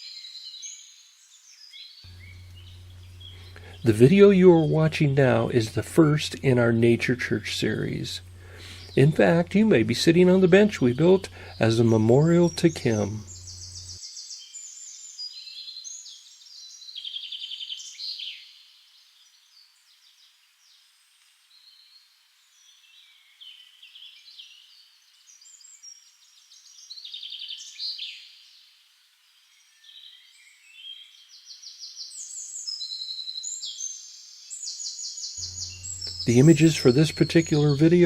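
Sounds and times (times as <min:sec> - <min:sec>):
songbirds chirping and trilling: 0:00.1 - 0:20.8, 0:22.5 - 0:38.0.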